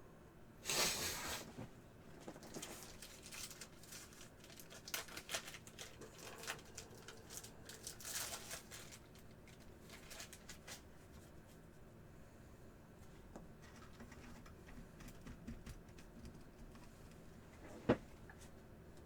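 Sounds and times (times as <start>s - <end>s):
cards crinkling and rustling: 2.2s - 11.4s.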